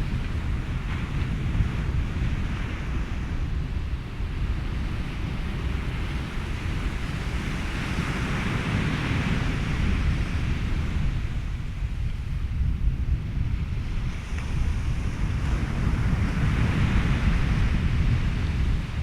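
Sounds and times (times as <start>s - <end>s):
ocean waves washing in: 0.0s - 19.0s
wind: 0.0s - 19.0s
steady low rumble: 9.5s - 19.0s.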